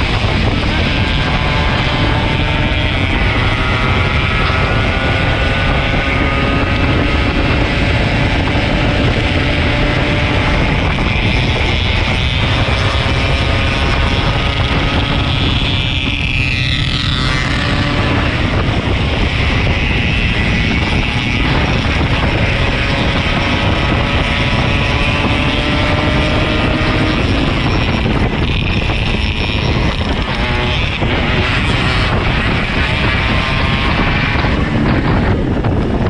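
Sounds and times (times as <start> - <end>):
motorcycle engine: 0.0 - 36.0
wind rumble on microphone: 0.0 - 36.0.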